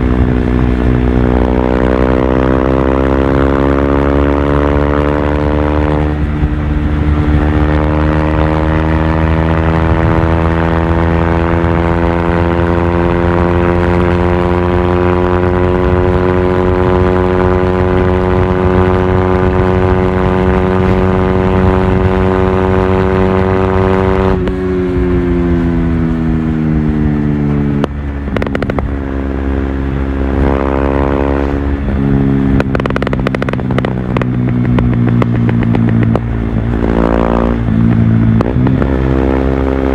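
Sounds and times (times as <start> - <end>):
gear changes: 0.0 - 39.9
motorcycle engine revving: 0.0 - 39.9.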